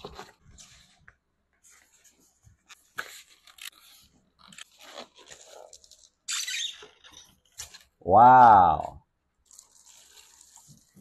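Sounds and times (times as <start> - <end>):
packaging rustle: 3.0 - 6.2
packaging crinkling and crackling: 3.1 - 6.2.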